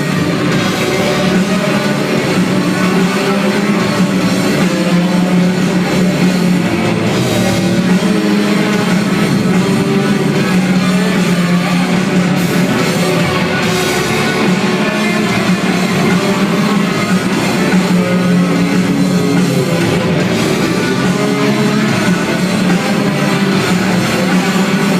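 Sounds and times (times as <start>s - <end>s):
drums: 0.0s - 24.9s
electric guitar: 0.0s - 24.9s.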